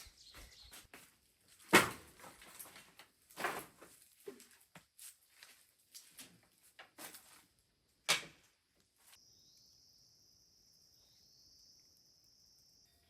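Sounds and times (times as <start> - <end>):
high-pitched insect trill: 9.2 - 13.0.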